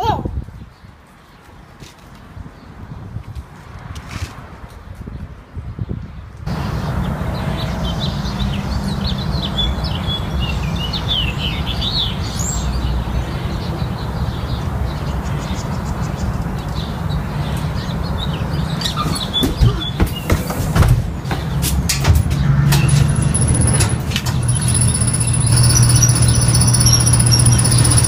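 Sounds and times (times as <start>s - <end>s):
sharp clicks: 22.7s - 28.0s
small birds chirping: 22.9s - 28.0s.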